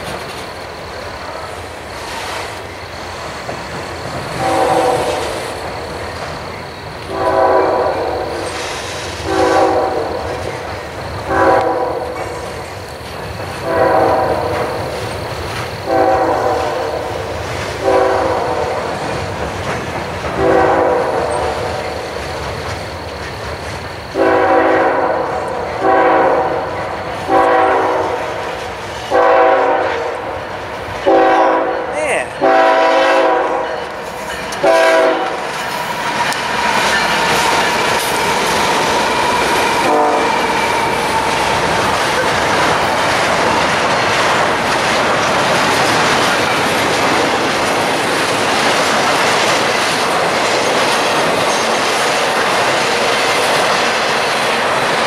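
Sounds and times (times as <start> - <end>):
train wheels clattering: 0.0 - 55.0
locomotive horn blasts: 4.4 - 5.4, 7.1 - 8.4, 9.2 - 10.2, 11.3 - 12.2, 13.6 - 14.6, 15.9 - 17.1, 17.8 - 18.7, 20.4 - 21.5, 24.2 - 26.6, 27.3 - 28.2, 29.1 - 30.2, 31.0 - 33.8, 34.6 - 35.4, 39.8 - 40.4.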